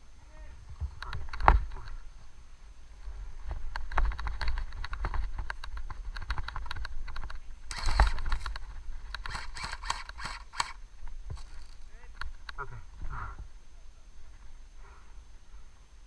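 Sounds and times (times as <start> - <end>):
sharp clicks and crackles: 3.7 - 12.6
rustling burst: 7.6 - 12.0.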